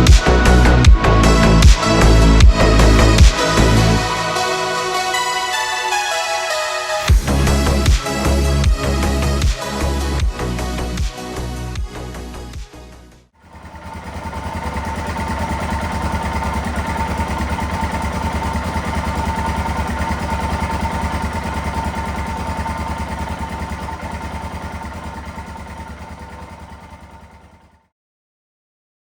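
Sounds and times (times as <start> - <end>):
motorcycle engine idling: 13.4 - 27.8.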